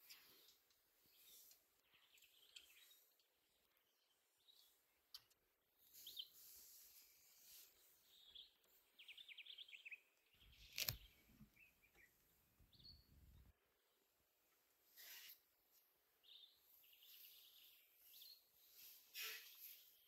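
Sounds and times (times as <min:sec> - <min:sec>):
bird chirps: 0:01.1 - 0:04.8, 0:05.8 - 0:06.5, 0:08.0 - 0:13.5.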